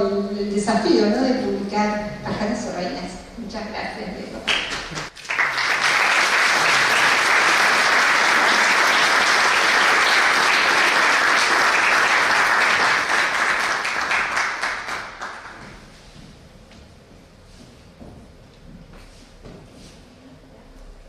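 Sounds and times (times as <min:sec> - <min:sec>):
audience applauding: 0:04.5 - 0:15.6.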